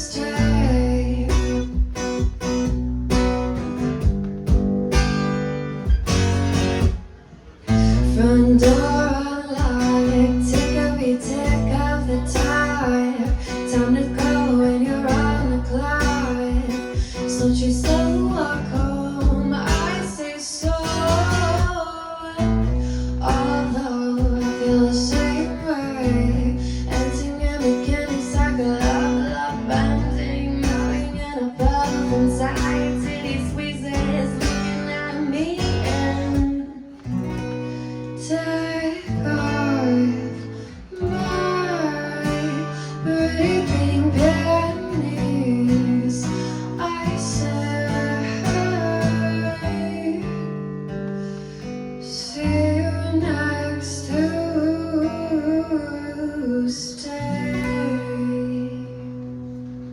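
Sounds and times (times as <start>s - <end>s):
guitar playing: 0.0s - 59.9s
drum hits: 1.8s - 2.7s, 4.0s - 5.2s.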